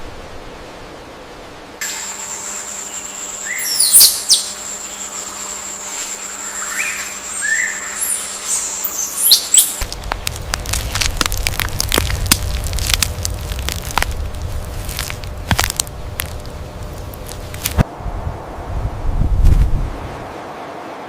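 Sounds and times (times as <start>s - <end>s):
high-pitched insect drone: 1.8s - 9.8s
birds chirping: 2.9s - 9.9s
crackling crunching sound: 8.9s - 17.9s.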